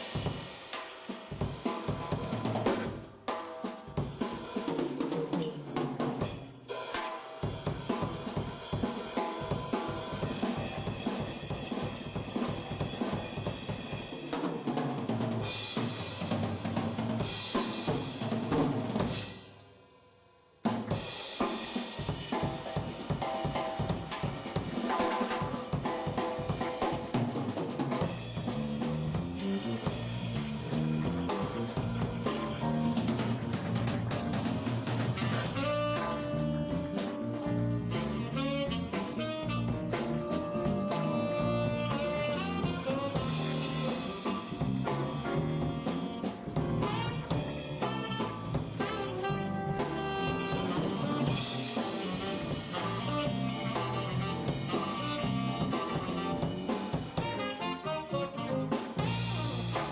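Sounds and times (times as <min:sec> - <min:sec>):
hi-hat and cymbal: 0:00.0 - 0:03.2
fast snare drum: 0:00.0 - 0:19.2, 0:20.7 - 0:59.9
jazz drum solo: 0:00.0 - 0:19.6, 0:20.6 - 0:59.9
bass drum: 0:27.0 - 0:59.9.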